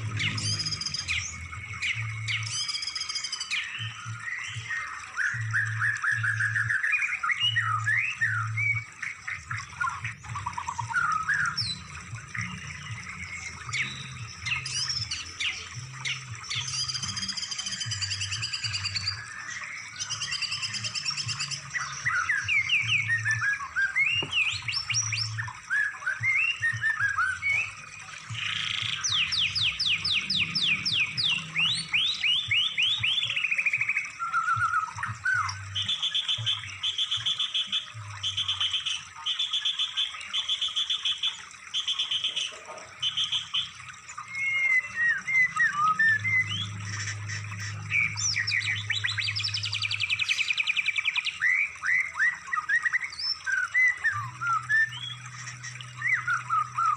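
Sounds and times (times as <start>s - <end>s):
low pulsing beat: 0.0s - 2.8s, 3.8s - 6.8s, 7.6s - 37.4s, 38.0s - 38.7s, 45.2s - 50.3s
songbird trills and whistles: 0.0s - 56.9s.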